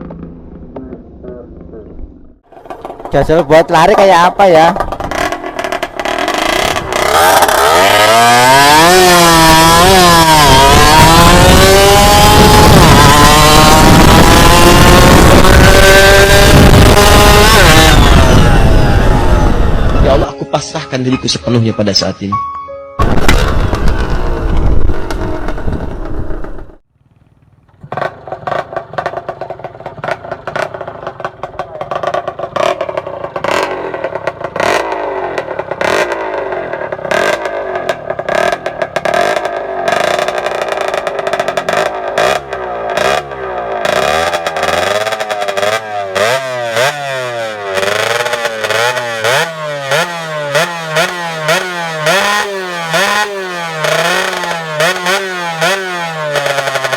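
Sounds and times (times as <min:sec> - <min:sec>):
two-stroke moped engine revving: 0:02.5 - 0:20.2, 0:23.1 - 0:56.9.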